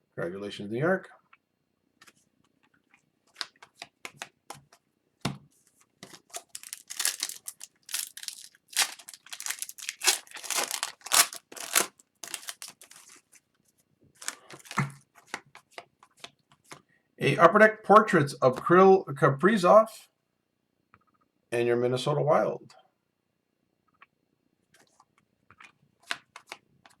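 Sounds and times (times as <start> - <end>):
wrapper tearing and rustling: 6.1 - 13.3, 14.2 - 14.9.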